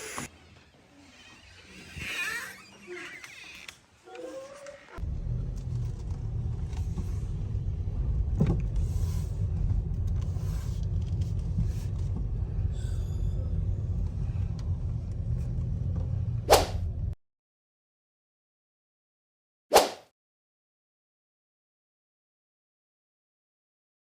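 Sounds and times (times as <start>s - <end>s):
car interior rumble: 5.0s - 17.2s.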